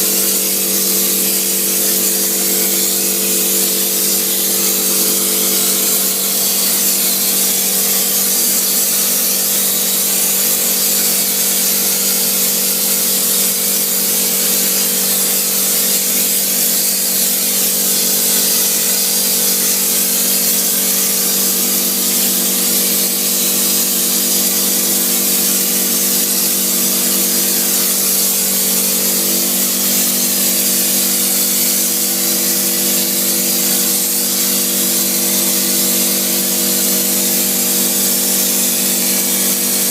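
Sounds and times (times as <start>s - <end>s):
spraying equipment hissing: 0.0s - 11.8s.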